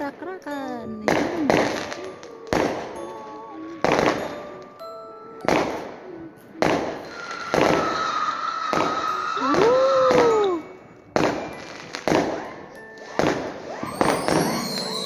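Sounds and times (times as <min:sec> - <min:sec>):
fireworks exploding: 0:01.1 - 0:04.5, 0:05.4 - 0:06.0, 0:06.6 - 0:10.5, 0:11.1 - 0:15.0.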